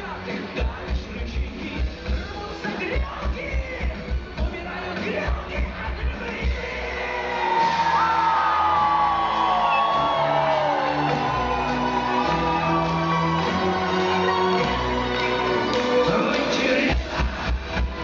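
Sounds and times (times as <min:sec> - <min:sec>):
rock band playing: 0:00.0 - 0:18.0
audience shouting and whooping: 0:06.6 - 0:16.8.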